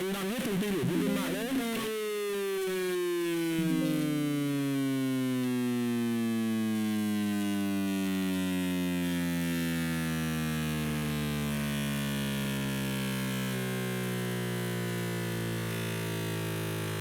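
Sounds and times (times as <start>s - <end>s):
electronic drone sliding downward: 3.6s - 4.9s.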